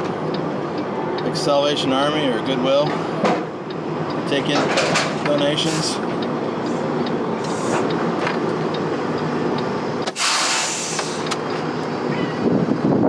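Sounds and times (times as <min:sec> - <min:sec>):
diesel truck engine running: 0:00.0 - 0:13.0
compressed air hiss: 0:10.1 - 0:11.3.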